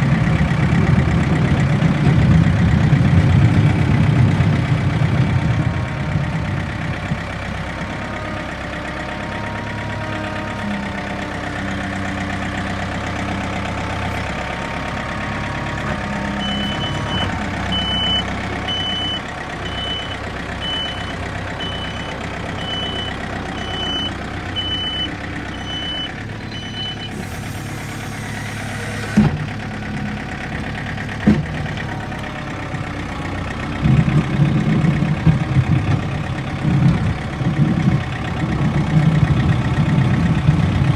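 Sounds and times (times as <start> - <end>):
diesel engine running under load: 0.0 - 40.9
reversing alarm beeping: 16.4 - 27.3.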